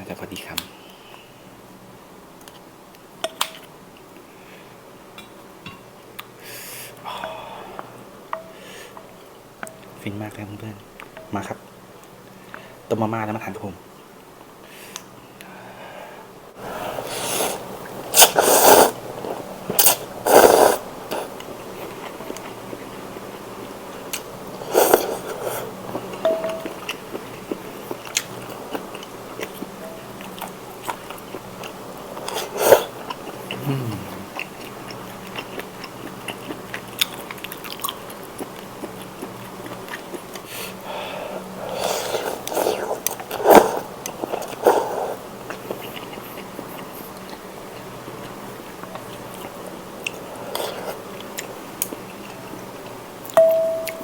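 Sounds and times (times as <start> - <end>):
slurping noodles and broth: 16.6 - 22.4, 24.6 - 26.0, 32.1 - 34.0, 40.4 - 46.8, 50.1 - 51.1
chewing: 18.2 - 23.4, 24.1 - 40.8, 41.7 - 54.0.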